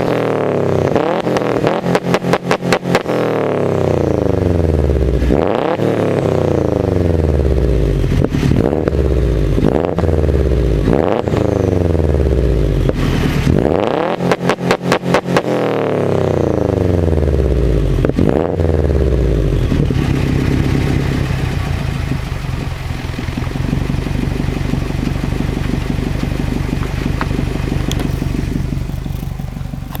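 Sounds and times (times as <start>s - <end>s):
car engine revving: 0.0s - 30.0s
rapid engine stuttering: 0.0s - 30.0s
car engine idling: 0.8s - 15.3s, 15.9s - 30.0s.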